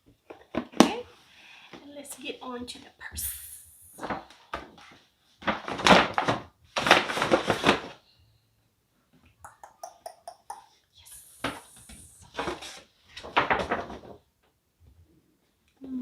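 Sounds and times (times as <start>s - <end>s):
paper and box rustling: 4.0s - 8.0s, 11.4s - 14.3s.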